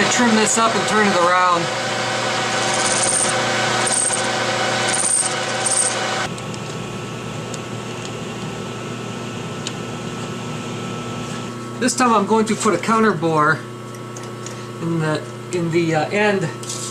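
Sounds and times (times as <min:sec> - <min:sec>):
metal lathe running hum: 0:00.0 - 0:06.4.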